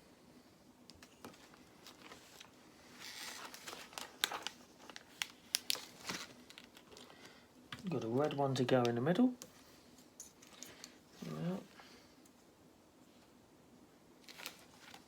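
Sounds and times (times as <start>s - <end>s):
rustle of pieces being sorted: 1.0s - 8.5s.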